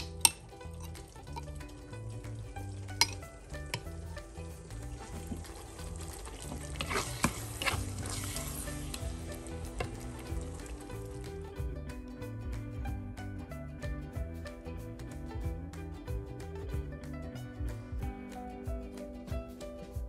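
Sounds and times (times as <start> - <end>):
spoon scraping a pan: 0.0 - 1.5, 2.9 - 4.0, 4.8 - 10.2
food sizzling in a frying pan: 0.0 - 11.5
background music: 0.0 - 20.0.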